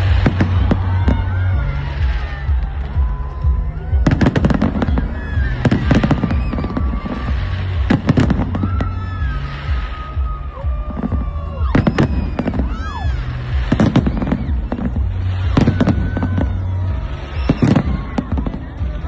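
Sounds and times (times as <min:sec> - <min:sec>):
fireworks bangs: 0:00.0 - 0:19.0
fireworks whistling: 0:00.0 - 0:19.0.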